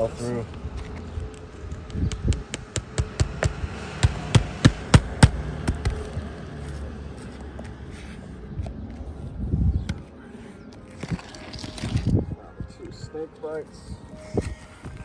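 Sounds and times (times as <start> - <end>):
hammer striking roofing nails: 2.1 - 6.1.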